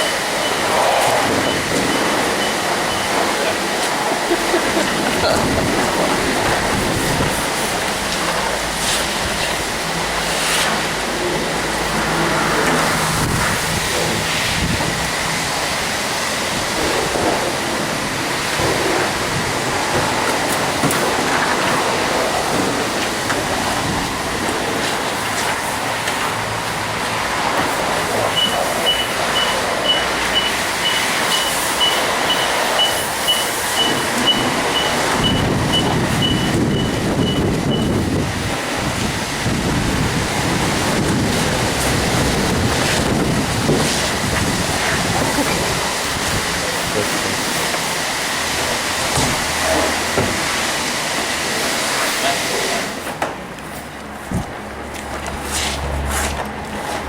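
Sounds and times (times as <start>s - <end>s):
high beeps: 0.0s - 0.7s, 1.3s - 3.6s, 28.3s - 38.0s
water and foam rushing: 0.0s - 53.2s.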